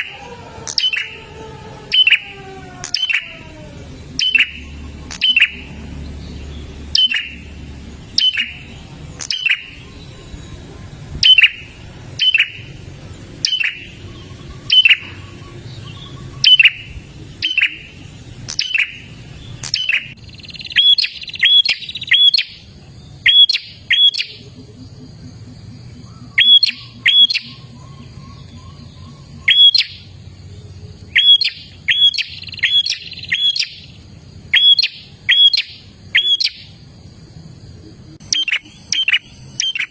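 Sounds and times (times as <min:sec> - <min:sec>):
bird chipping calls: 0:00.0 - 0:30.2, 0:30.9 - 0:36.8, 0:38.2 - 0:39.9.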